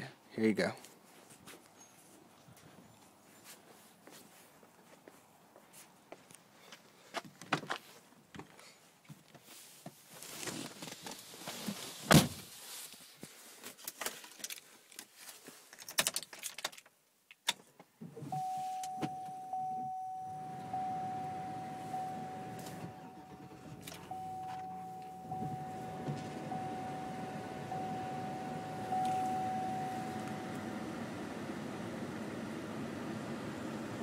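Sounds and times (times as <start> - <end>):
high warning tone: 18.3 - 31.9
car engine starting and idling: 18.3 - 34.0.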